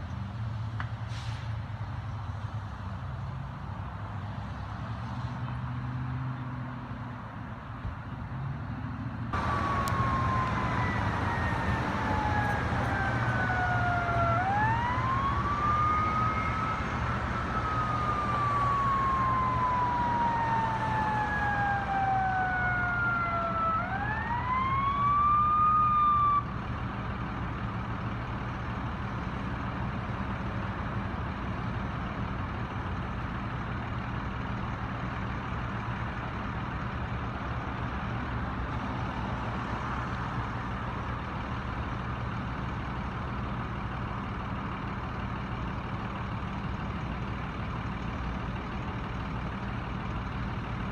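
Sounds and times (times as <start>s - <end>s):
heavy truck engine running: 0.0s - 50.9s
emergency siren wailing: 9.4s - 26.6s.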